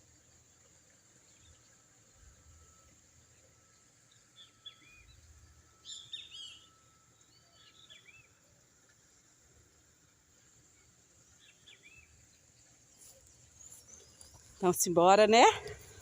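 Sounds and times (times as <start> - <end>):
bird chirping: 4.1 - 8.4, 10.8 - 16.0.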